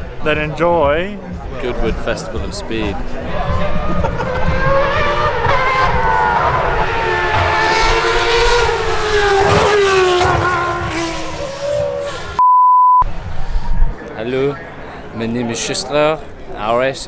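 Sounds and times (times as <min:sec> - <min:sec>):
racing car engines at high revs: 0:00.0 - 0:12.4.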